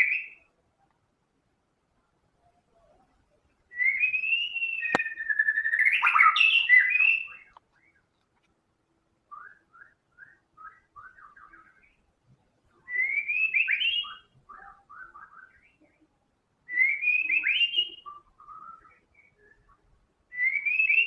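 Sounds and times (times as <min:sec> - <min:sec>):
bird chirping and whistling: 0:03.7 - 0:07.5, 0:09.4 - 0:12.0, 0:12.9 - 0:15.8, 0:16.7 - 0:21.0.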